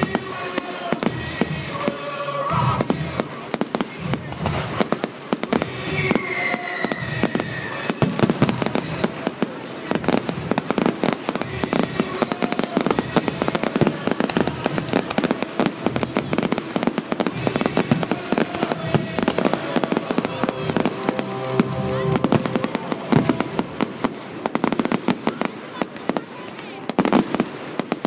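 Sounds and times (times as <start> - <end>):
firework whistle: 0.0 - 26.2
fireworks bangs and crackles: 0.0 - 28.0.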